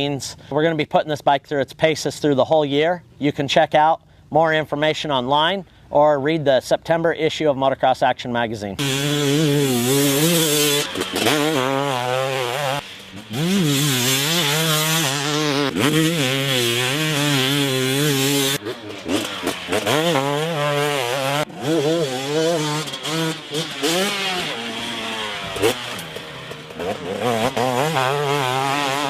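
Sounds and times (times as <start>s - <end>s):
two-stroke motocross engine revving: 8.8s - 29.0s.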